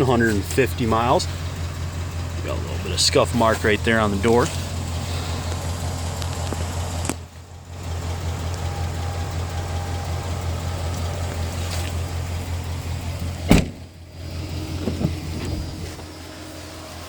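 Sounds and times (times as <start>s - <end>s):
truck engine idling: 0.0s - 17.0s
door slamming: 13.4s - 14.0s.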